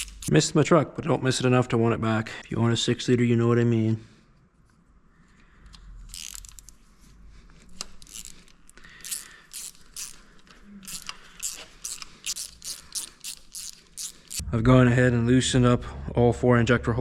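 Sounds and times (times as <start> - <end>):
hand ratchet clicking: 0.0 - 0.3, 5.7 - 6.8, 7.7 - 14.4.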